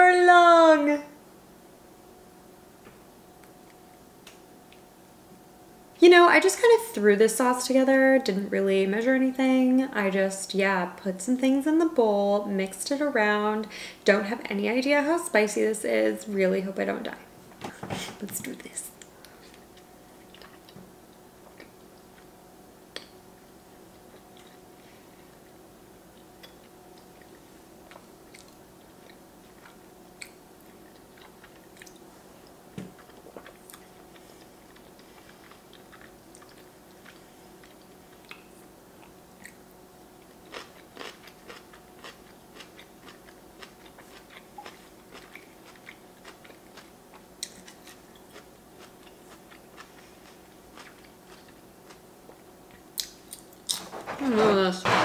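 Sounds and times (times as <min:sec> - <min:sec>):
faint steady hum: 0:00.0 - 0:55.0
wet chewing clicks and smacks: 0:19.0 - 0:20.8, 0:26.2 - 0:39.7, 0:40.4 - 0:53.8.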